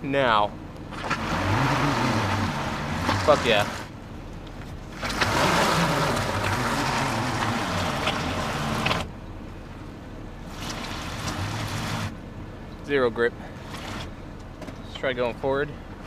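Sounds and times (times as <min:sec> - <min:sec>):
car engine revving: 0:00.8 - 0:09.2, 0:10.4 - 0:12.3.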